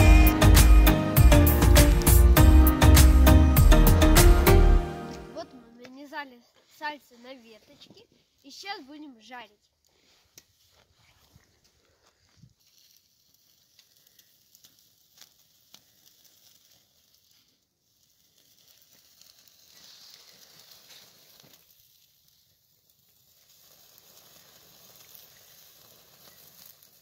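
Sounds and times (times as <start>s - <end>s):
pork fat sizzling: 0.0s - 5.4s, 12.5s - 27.0s
campfire wood crackling: 0.0s - 27.0s.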